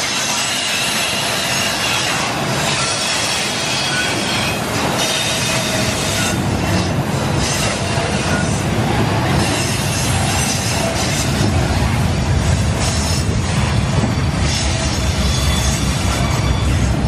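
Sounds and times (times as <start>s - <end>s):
faint high wheel squeal: 0.0s - 6.8s, 12.8s - 17.0s
steel wheels running on rails: 0.0s - 17.0s.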